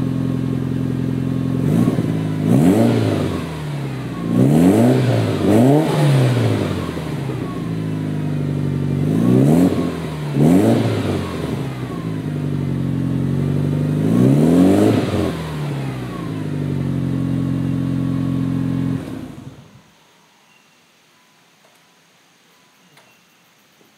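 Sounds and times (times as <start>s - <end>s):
car engine idling and revving: 0.0s - 19.8s.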